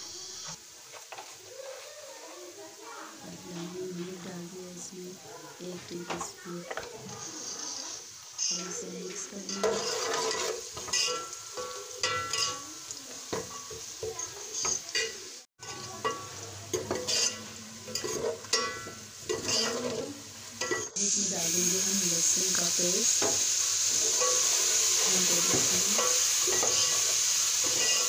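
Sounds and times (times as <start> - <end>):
frying hiss: 0.0 - 28.0
ladle scraping a metal pot: 9.5 - 12.5, 16.8 - 20.0, 24.0 - 28.0.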